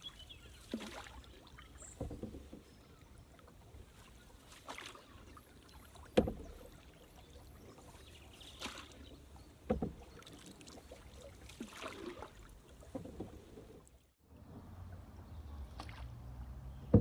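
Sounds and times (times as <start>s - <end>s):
paddle swishing through water: 0.0s - 17.0s
sharp knocks on canoe: 1.9s - 2.7s, 6.0s - 6.6s, 9.6s - 10.5s.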